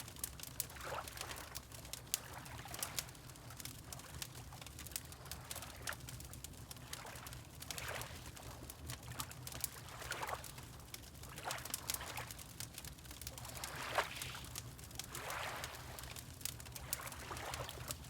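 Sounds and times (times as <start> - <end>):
wood fire crackling: 0.0 - 9.9, 10.5 - 13.8, 14.4 - 18.0
water lapping: 13.4 - 18.0.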